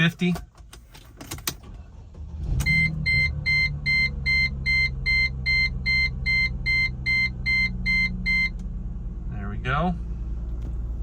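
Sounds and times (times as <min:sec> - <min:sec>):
car engine starting and idling: 0:00.0 - 0:11.0
dashboard warning beeps: 0:02.6 - 0:08.6.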